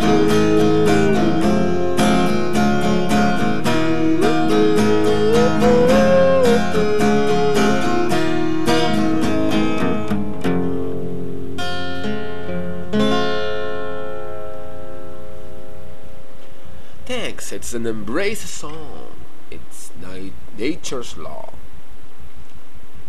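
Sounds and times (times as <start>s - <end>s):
acoustic guitar strumming: 0.0s - 16.9s.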